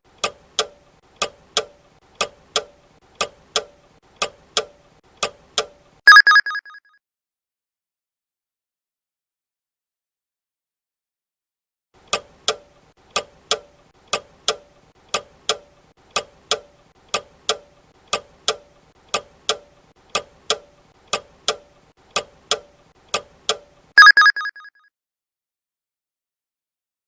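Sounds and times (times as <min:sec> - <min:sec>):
clock ticking: 0:00.2 - 0:06.3, 0:13.2 - 0:24.5
loud ringing chime: 0:24.0 - 0:24.6.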